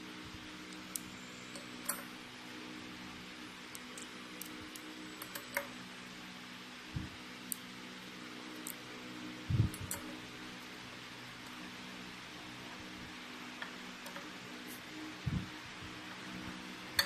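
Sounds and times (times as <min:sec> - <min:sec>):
low hum: 0:08.0 - 0:17.0.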